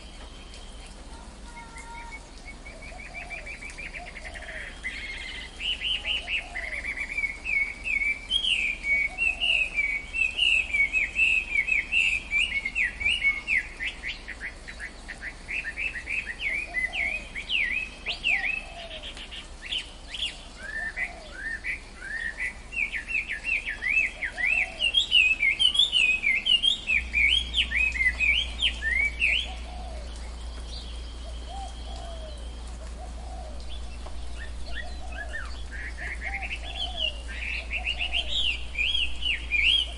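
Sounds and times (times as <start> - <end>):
lower bird calls: 0.0 - 39.9
birds chirping high notes: 21.5 - 32.8.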